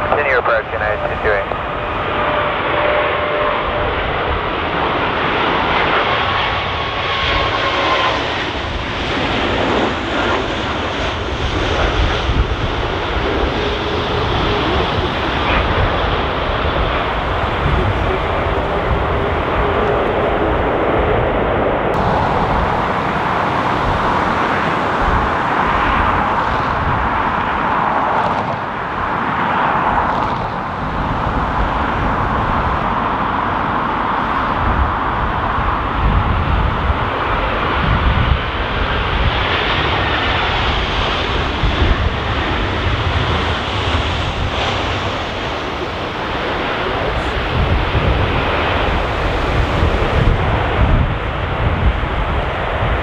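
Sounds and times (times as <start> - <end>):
jet engines roaring: 0.0 - 53.0
wind buffeting microphone: 10.8 - 29.3, 34.4 - 53.0.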